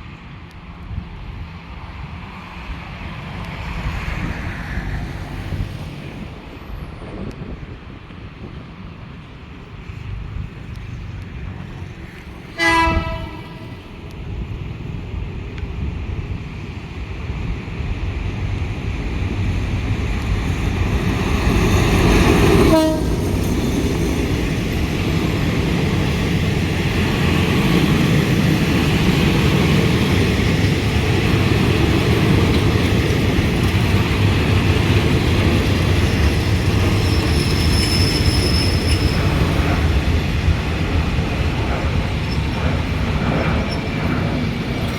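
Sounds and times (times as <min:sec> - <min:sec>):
train running: 0:00.0 - 0:44.9
train horn: 0:12.5 - 0:14.0, 0:22.5 - 0:23.4.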